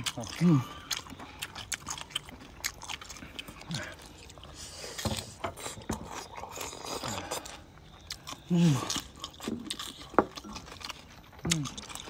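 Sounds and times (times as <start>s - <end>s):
chewing and biting: 0.0s - 12.0s.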